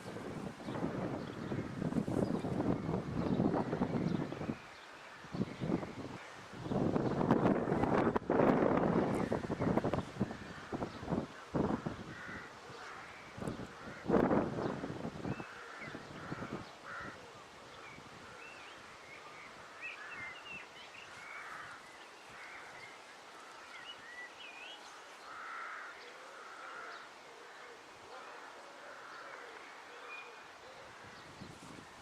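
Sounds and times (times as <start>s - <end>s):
crows cawing: 11.7s - 13.2s, 15.4s - 17.3s, 21.1s - 23.6s, 25.2s - 30.1s.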